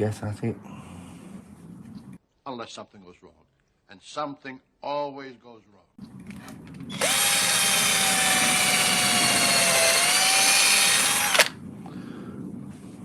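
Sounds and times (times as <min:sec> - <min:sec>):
power drill whining: 0:06.9 - 0:11.6.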